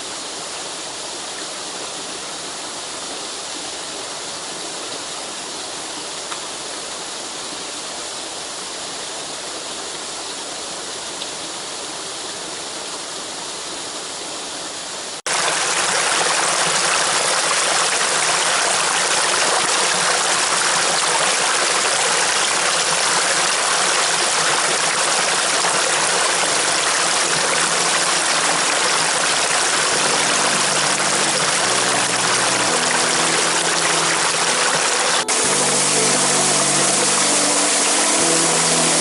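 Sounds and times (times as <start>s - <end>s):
rushing water: 0.0s - 39.0s
quiet music with held notes: 26.5s - 39.0s.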